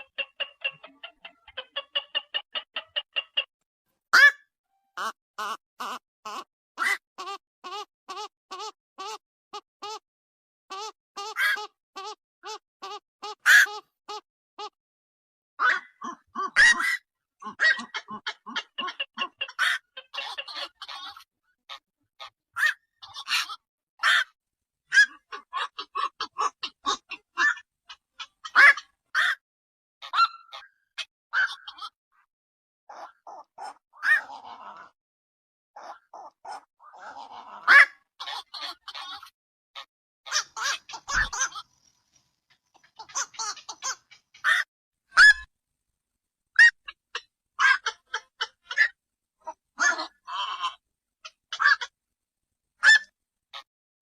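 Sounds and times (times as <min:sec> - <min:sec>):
herons calling: 0:40.3 - 0:41.9, 0:42.5 - 0:44.7, 0:46.6 - 0:49.0.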